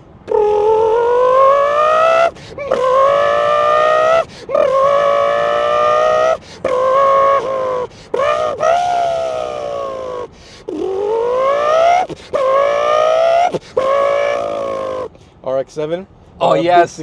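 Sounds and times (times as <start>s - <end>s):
man imitating engine revving: 0.2s - 15.2s.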